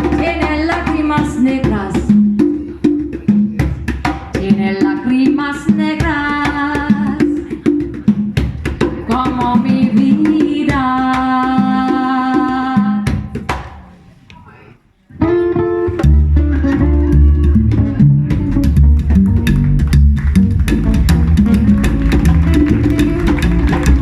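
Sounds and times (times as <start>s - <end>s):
conga drums: 0.0s - 14.6s, 15.2s - 24.0s
person singing: 9.1s - 13.1s.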